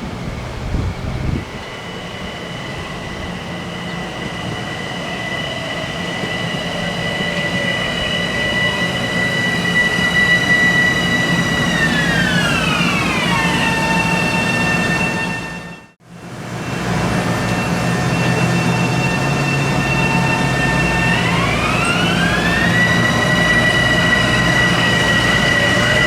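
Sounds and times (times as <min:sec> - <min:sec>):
train running past: 0:00.0 - 0:26.0
high whine sliding down: 0:16.7 - 0:26.0.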